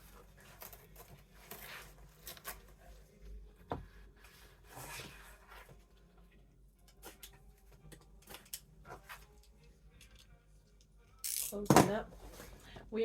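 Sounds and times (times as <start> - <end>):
cardboard scraping and rubbing: 4.4 - 5.8.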